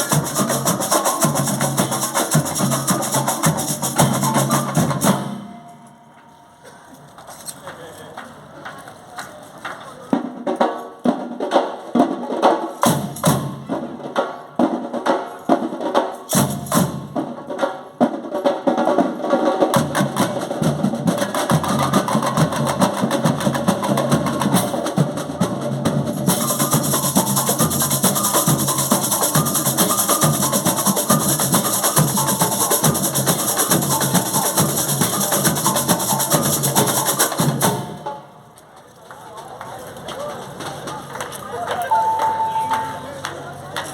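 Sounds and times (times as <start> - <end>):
drum fills: 0.0 - 5.9, 41.9 - 43.2
live band playing: 0.0 - 6.1, 41.8 - 43.4
cymbals: 0.0 - 6.9, 12.7 - 17.3, 21.2 - 38.3, 41.9 - 43.3.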